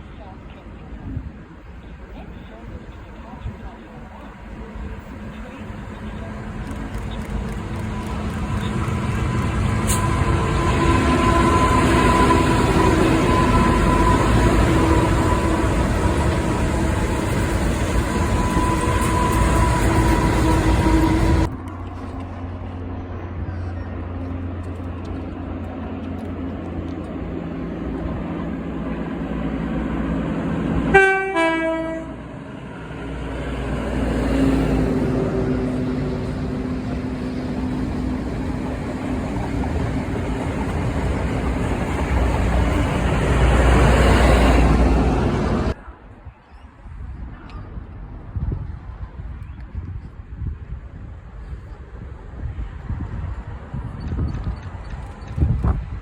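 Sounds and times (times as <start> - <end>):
train engine rumble: 0.0 - 56.0
train horn toot: 7.9 - 21.5, 30.9 - 32.3.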